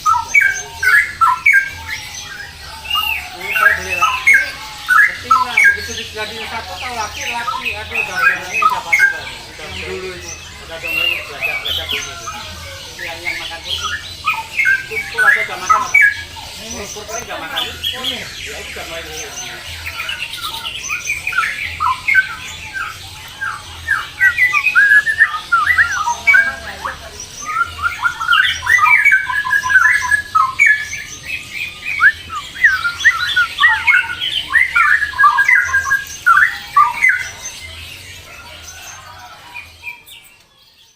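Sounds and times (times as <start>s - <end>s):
caged birds chirping and squawking: 0.0s - 40.9s.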